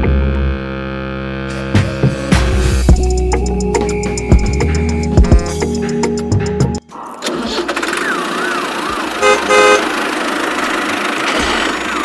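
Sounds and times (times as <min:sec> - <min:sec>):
background music: 0:01.5 - 0:07.4
horn honks: 0:09.2 - 0:10.2.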